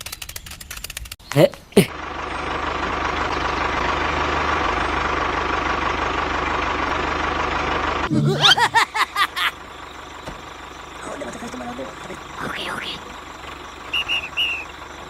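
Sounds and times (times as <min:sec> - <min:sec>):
tractor engine running: 0:01.9 - 0:15.0
chirping pitch sweeps: 0:08.1 - 0:09.9.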